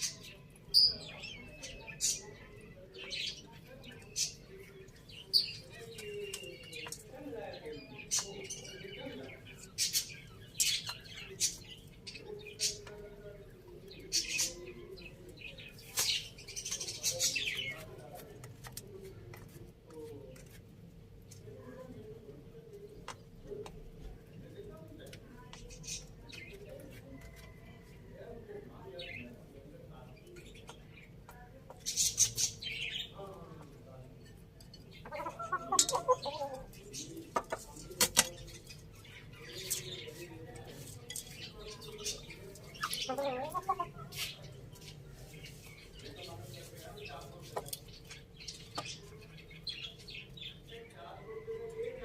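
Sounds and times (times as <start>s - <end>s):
chickens pecking taps: 5.6s - 9.6s, 17.6s - 21.5s, 22.8s - 27.5s, 30.4s - 32.0s, 34.4s - 49.4s
chickens calling softly: 34.8s - 50.7s
chickens pecking clicks: 37.2s - 38.9s.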